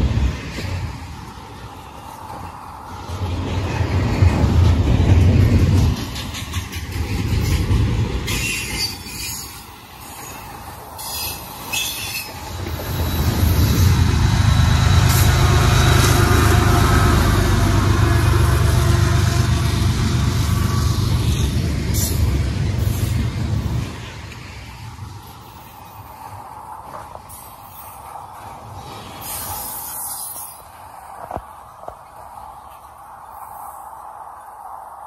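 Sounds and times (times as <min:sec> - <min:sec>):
train rumbling on tracks: 0:00.0 - 0:35.0.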